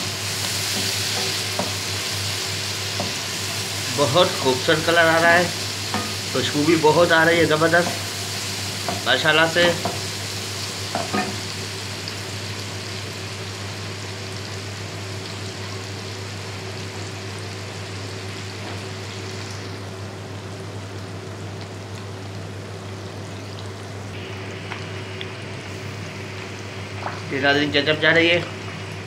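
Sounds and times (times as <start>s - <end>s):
chicken sizzling in a wok: 0.0s - 29.0s.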